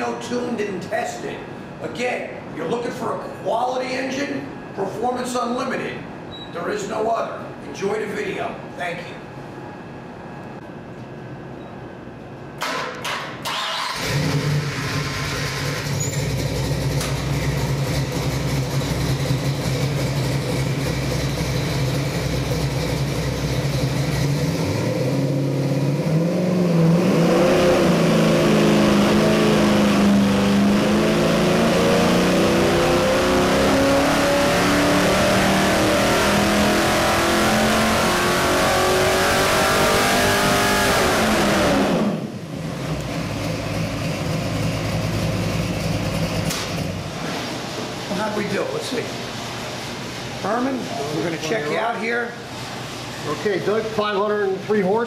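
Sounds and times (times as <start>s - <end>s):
engine starting: 12.6s - 17.3s
engine revving under load: 13.4s - 48.0s.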